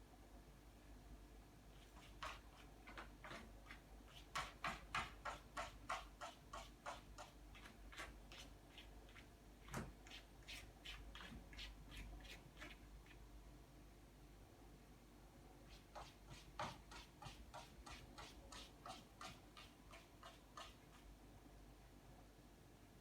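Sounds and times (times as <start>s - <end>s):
faint irregular clicks and taps: 1.8s - 10.3s.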